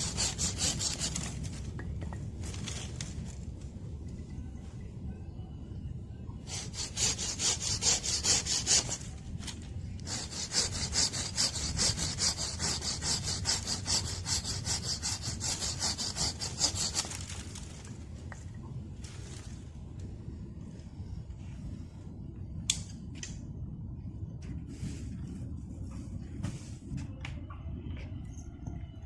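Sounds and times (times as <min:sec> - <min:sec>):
hand saw cutting wood: 0:00.0 - 0:01.4, 0:06.5 - 0:09.1, 0:10.1 - 0:17.2.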